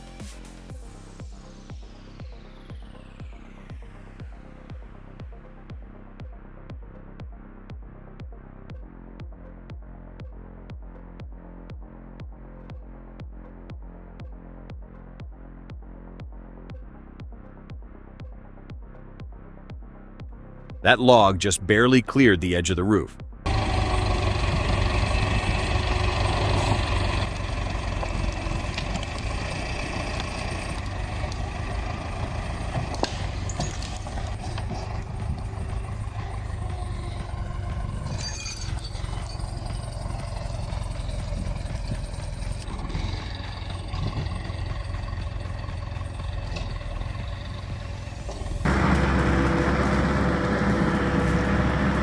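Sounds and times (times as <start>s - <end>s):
machine engine running: 23.5s - 52.0s.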